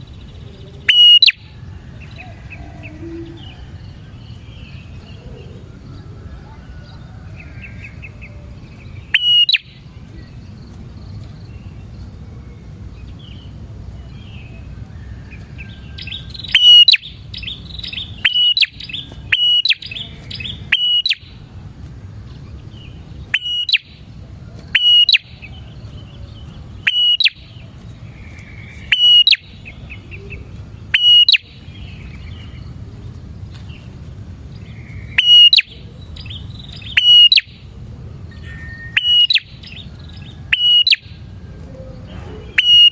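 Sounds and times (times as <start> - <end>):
softer bird twittering: 0.0 - 6.0, 24.7 - 32.7
steady low hum: 0.0 - 42.9
bird sharp call notes: 0.9 - 1.5, 9.1 - 9.8, 16.0 - 21.4, 23.3 - 24.0, 24.8 - 25.6, 26.8 - 27.6, 28.4 - 29.6, 31.0 - 31.6, 34.9 - 35.9, 36.7 - 37.6, 38.4 - 39.8, 40.5 - 41.1, 42.4 - 42.9.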